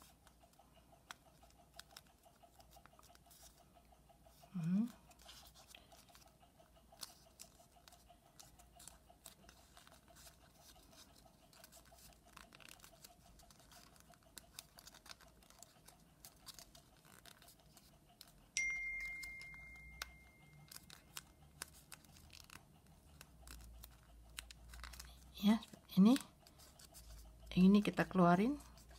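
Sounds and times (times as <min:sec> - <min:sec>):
paper crinkling and rustling: 0:07.0 - 0:18.3, 0:19.2 - 0:27.3
high clear ding: 0:18.6 - 0:20.4.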